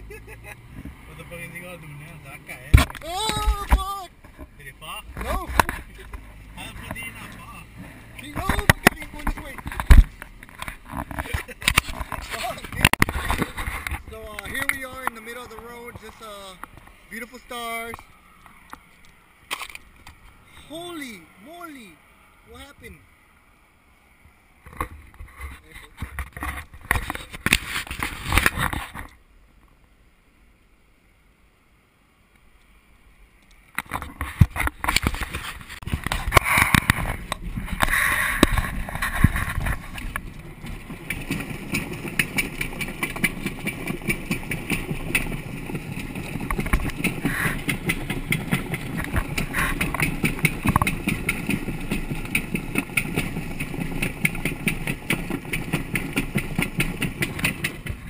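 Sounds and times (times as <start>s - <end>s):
car engine running: 0.0s - 16.6s, 35.7s - 58.0s.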